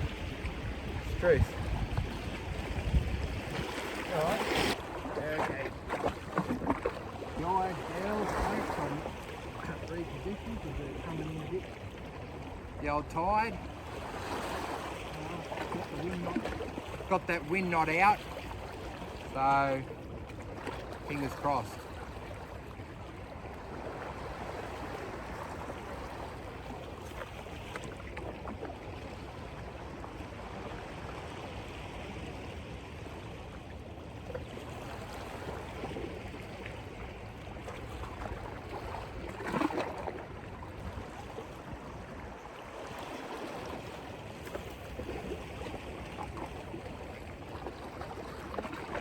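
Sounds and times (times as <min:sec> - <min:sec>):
seawater washing against rocks: 0:00.0 - 0:22.3, 0:34.6 - 0:49.0.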